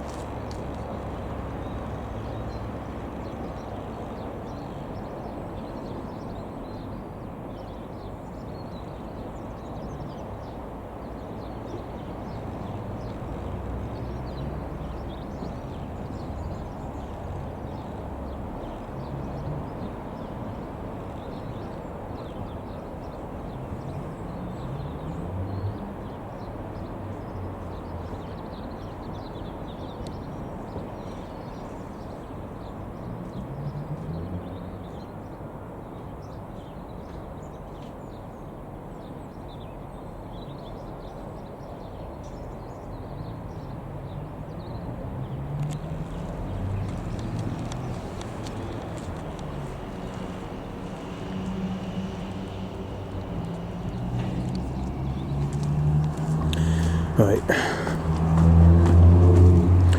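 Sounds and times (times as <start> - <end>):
distant engine rumble: 46.4 - 59.9.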